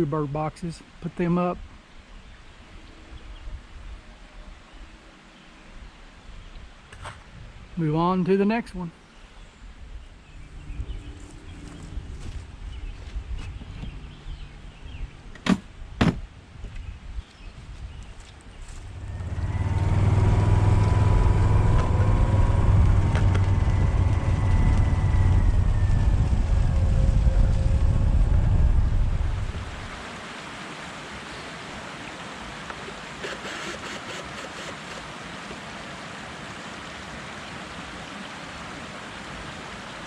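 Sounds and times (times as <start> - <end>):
wind rumble on microphone: 1.6 - 5.0, 5.8 - 7.8, 9.3 - 30.1
vehicle engine running: 10.6 - 13.1, 18.6 - 29.7.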